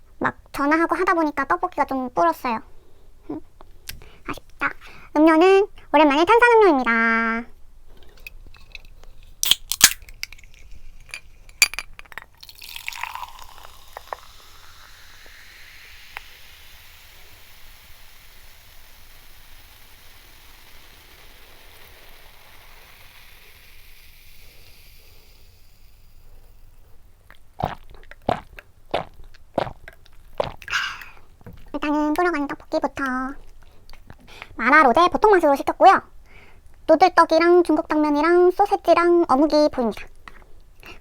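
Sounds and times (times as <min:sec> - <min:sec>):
drink fizzing: 0:09.4 - 0:26.7
soft drink pouring into glass: 0:09.8 - 0:17.4.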